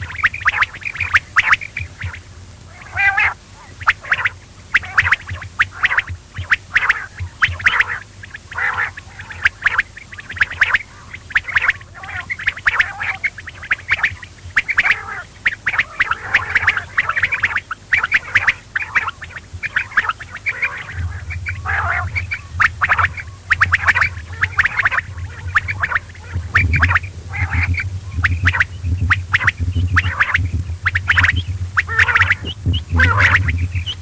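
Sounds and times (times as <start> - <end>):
quail calling: 0.0 - 34.0
steady low hum: 0.0 - 34.0.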